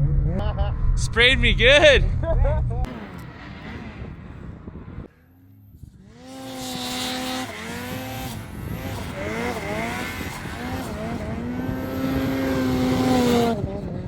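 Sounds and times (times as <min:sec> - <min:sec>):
snowmobile engine revving: 0:02.8 - 0:14.0.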